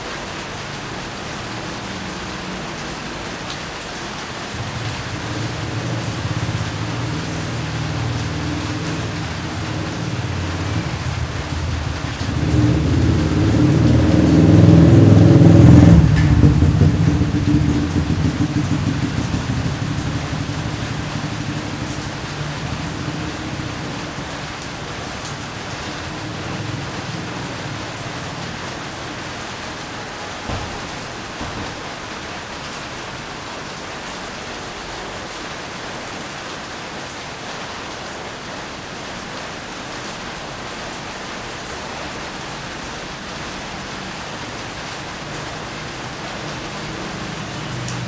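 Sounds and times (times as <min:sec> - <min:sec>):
steady rain falling: 0:00.0 - 0:48.0
low engine hum: 0:04.5 - 0:27.9.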